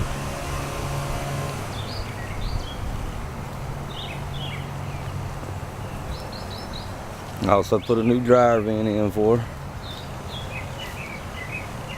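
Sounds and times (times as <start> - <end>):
low mechanical hum: 0.0 - 6.1
small birds chirping: 1.5 - 11.9.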